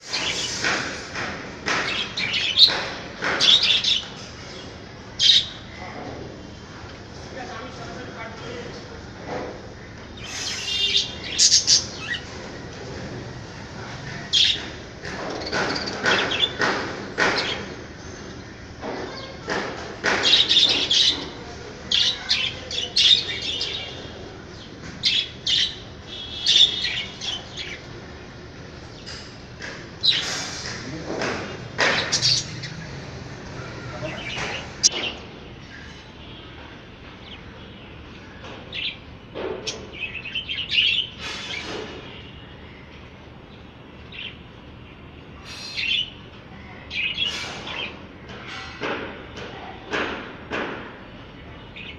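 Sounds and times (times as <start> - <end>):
budgerigars chirping and chattering: 1.7 - 5.6, 10.2 - 12.3, 14.2 - 17.8, 20.2 - 27.9, 30.0 - 32.9, 33.6 - 35.2
loud bird call: 10.2 - 12.2, 25.2 - 27.8, 45.4 - 46.2
budgerigars chirping: 31.9 - 32.8.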